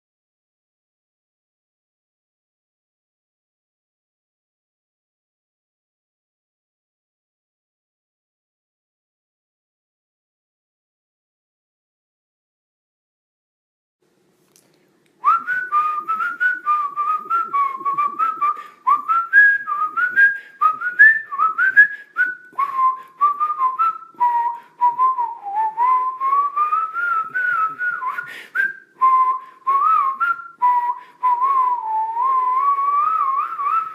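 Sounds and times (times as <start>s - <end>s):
person whistling a tune: 15.2s - 33.9s.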